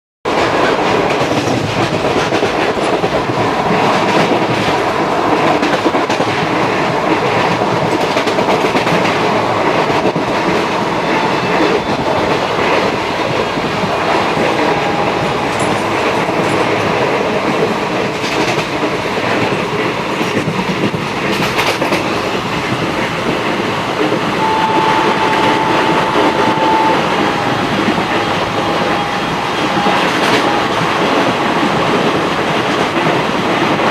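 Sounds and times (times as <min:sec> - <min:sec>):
clickety-clack over rail joints: 0:00.3 - 0:24.4, 0:27.7 - 0:33.9
train wheels rumbling on rails: 0:00.3 - 0:33.9
thin steady tone: 0:24.4 - 0:29.0.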